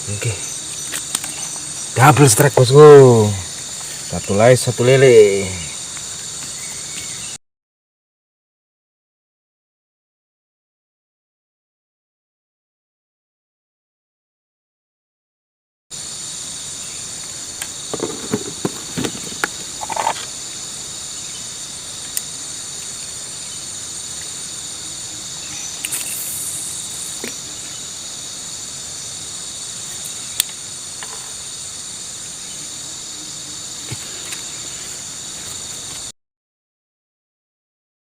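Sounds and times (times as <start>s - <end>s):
insects chirping: 0.0s - 7.4s, 15.9s - 36.1s.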